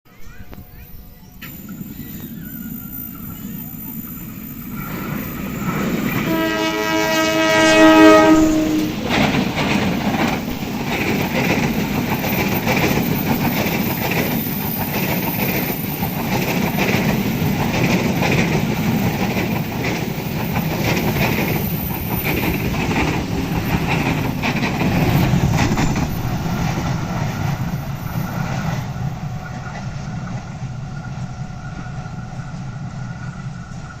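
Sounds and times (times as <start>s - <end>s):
train horn: 5.6s - 9.5s
train wheels clicking over rail joints: 8.9s - 34.0s.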